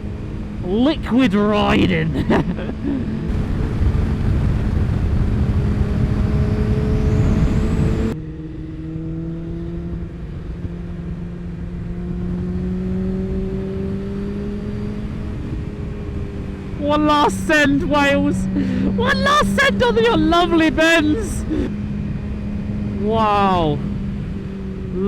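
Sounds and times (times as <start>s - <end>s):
motorcycle engine running: 2.1s - 25.0s
wind rush: 3.0s - 8.2s.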